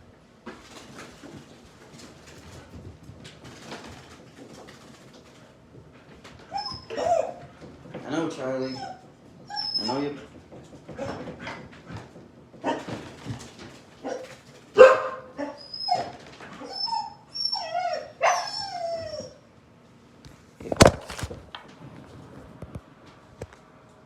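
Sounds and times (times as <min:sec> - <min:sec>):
dog whining and yelping: 0:06.3 - 0:07.7, 0:08.4 - 0:12.0, 0:14.0 - 0:19.5.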